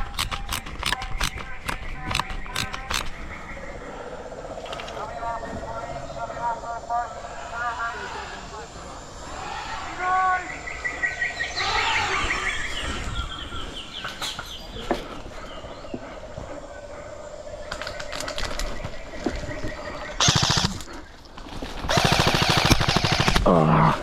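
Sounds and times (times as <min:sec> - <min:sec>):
airsoft guns firing: 0:20.2 - 0:20.8, 0:21.9 - 0:23.5.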